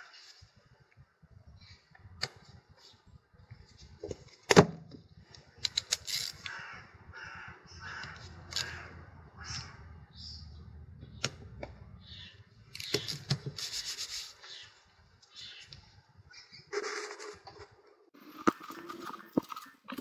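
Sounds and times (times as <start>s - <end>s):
small metal parts clicking: 5.6s - 6.6s.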